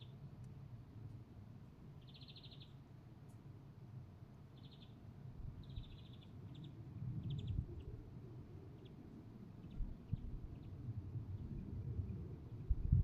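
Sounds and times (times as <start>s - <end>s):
low outdoor rumble: 9.8s - 13.0s.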